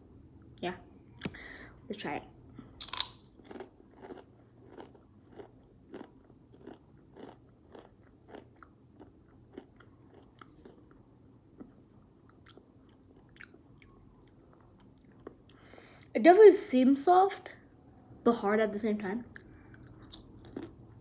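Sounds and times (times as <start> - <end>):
person chewing potato chip: 2.7 - 11.0, 11.6 - 15.6, 19.4 - 20.8.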